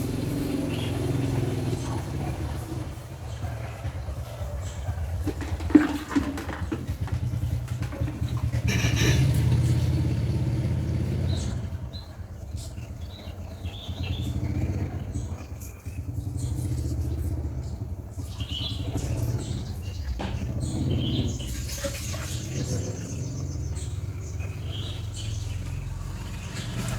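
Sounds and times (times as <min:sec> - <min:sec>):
engine humming: 0:00.0 - 0:26.9
bird chirps: 0:11.0 - 0:26.9.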